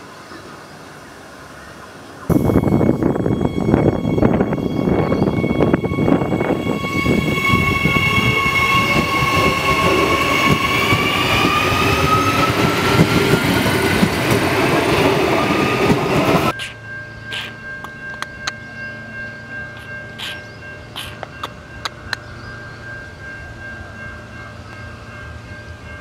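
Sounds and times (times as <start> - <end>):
train motor whine: 2.3 - 18.6
train wheels rumbling on track: 2.3 - 26.0.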